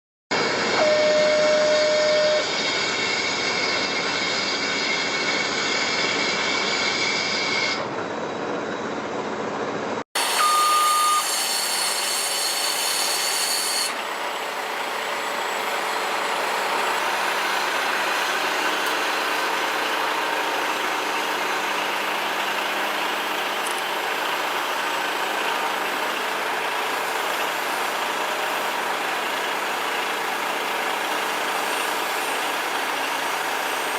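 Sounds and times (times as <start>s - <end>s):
short steady beep: 0.8s - 2.5s, 10.4s - 11.4s
truck engine running: 14.0s - 33.9s.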